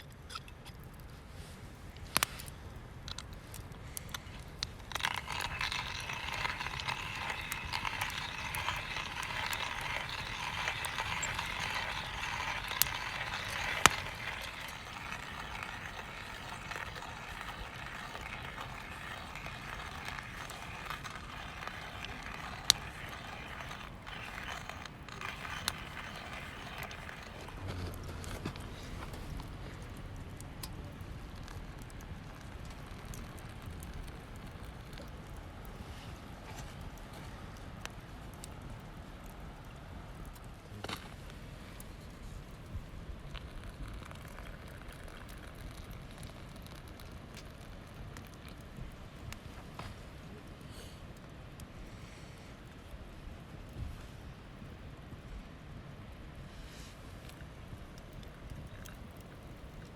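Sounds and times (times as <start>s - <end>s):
sharp crackles and clicks: 1.8s - 55.2s, 56.7s - 59.9s
ham sizzling in a pan: 3.4s - 36.1s.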